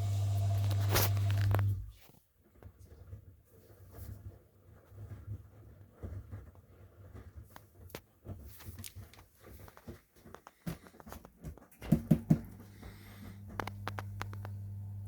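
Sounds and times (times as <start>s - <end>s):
washing machine low hum: 0.0s - 2.0s, 11.7s - 15.0s
washing machine clicks and knocks: 11.8s - 12.6s.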